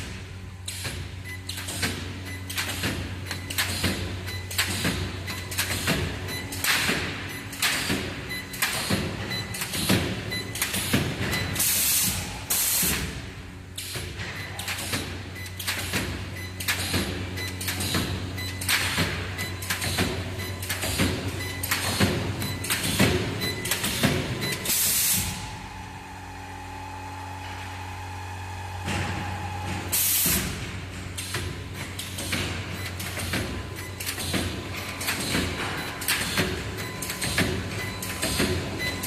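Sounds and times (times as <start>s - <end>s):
welding machine knocks and clacks: 0.0s - 25.4s, 28.8s - 39.0s
electrical hum: 0.0s - 39.0s.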